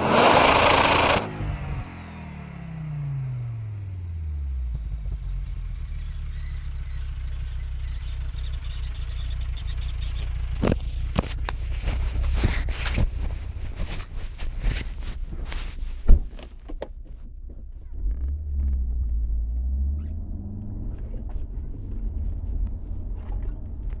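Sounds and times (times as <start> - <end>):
car engine idling: 0.0 - 1.4
sharp clicks: 0.0 - 1.4.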